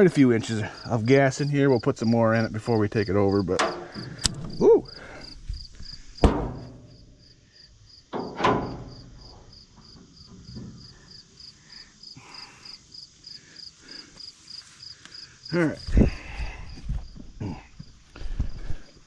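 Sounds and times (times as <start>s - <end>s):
crickets chirping: 0.0s - 19.0s
loud knocks: 3.6s - 7.0s.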